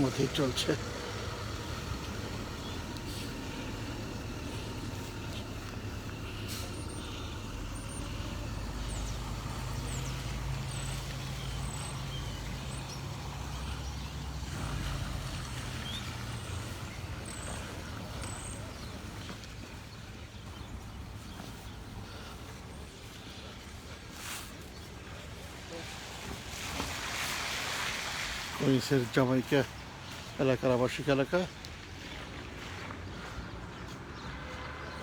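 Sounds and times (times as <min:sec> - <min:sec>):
heavy vehicle engine humming: 0:00.0 - 0:26.0
city street traffic: 0:00.0 - 0:35.0.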